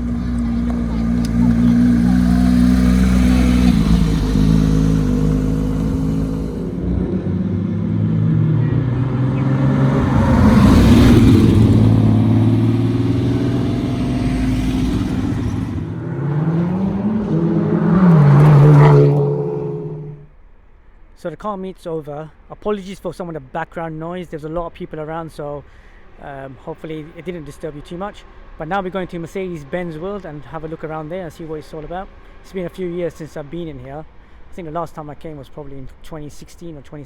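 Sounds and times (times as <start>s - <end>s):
engine revving: 0.0s - 20.3s
car engines idling: 0.0s - 37.0s.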